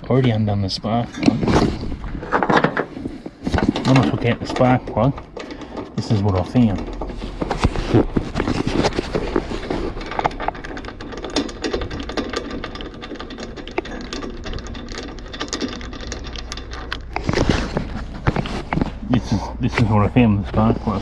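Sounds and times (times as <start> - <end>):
clicking and tapping of handling: 2.4 - 18.9.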